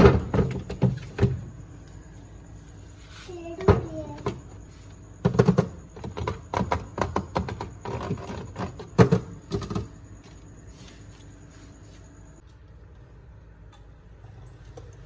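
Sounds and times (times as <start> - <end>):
drink containers knocking and clinking: 5.2 - 9.9.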